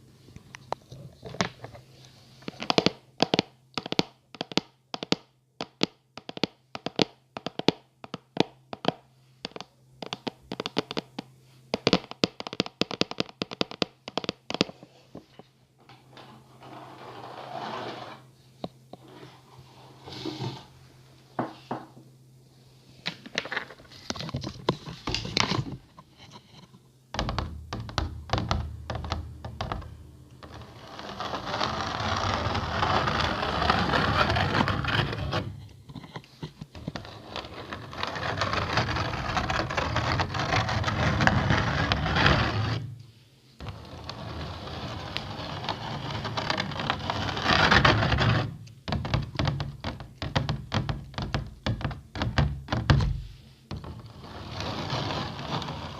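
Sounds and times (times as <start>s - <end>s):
scratching close to microphone: 16.1s - 18.4s, 23.3s - 26.8s, 30.4s - 42.8s, 43.6s - 50.3s, 53.2s - 55.9s.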